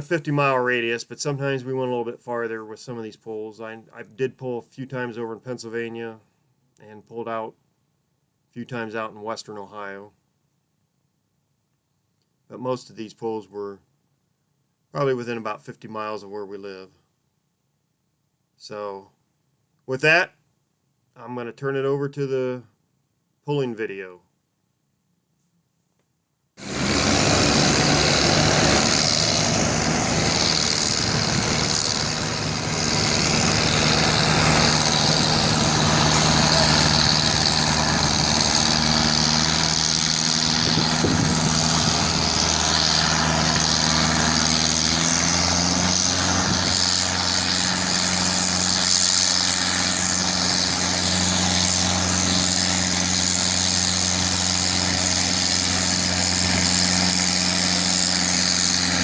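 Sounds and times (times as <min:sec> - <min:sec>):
tractor engine running hard: 0:26.6 - 0:59.0.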